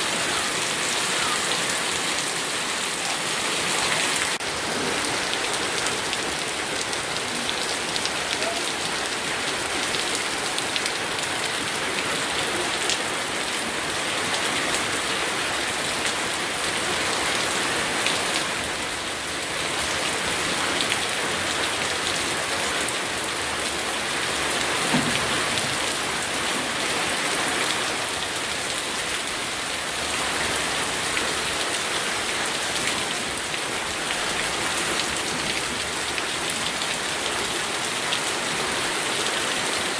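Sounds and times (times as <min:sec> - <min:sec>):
nearby raindrops: 0:00.0 - 0:39.9
steady heavy rainfall: 0:00.0 - 0:39.9.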